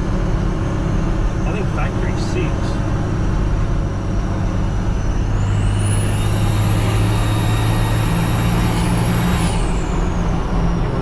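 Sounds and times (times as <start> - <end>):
diesel engine droning: 0.0 - 11.0
turbocharger whistle: 4.9 - 10.8.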